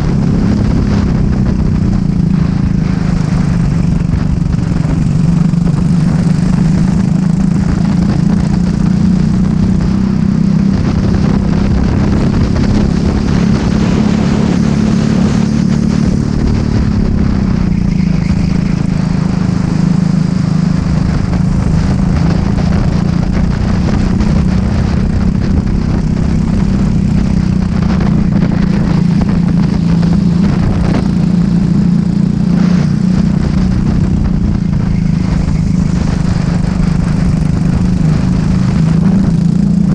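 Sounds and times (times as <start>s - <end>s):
racing kart engine: 0.0s - 39.9s.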